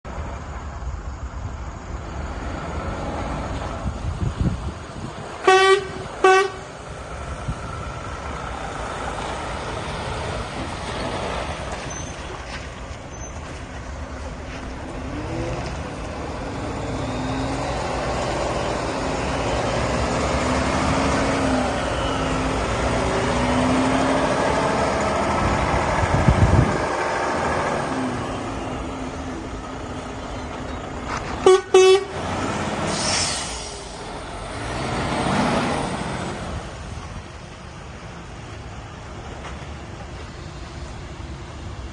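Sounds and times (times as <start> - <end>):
diesel truck engine running: 0.1 - 41.9
truck horn blasts: 5.4 - 6.8, 31.4 - 32.3.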